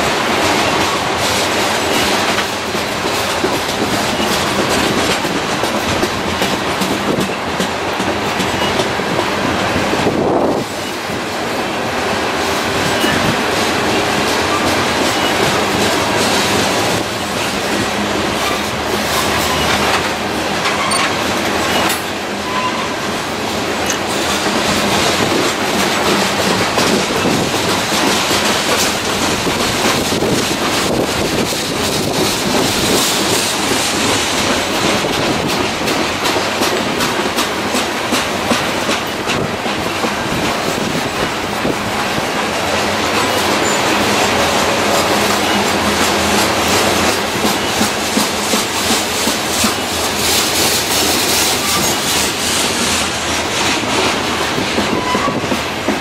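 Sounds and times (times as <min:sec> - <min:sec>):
freight train rumbling past: 0:00.0 - 0:56.0
wheels clicking over rail joints: 0:00.4 - 0:09.4, 0:23.7 - 0:56.0.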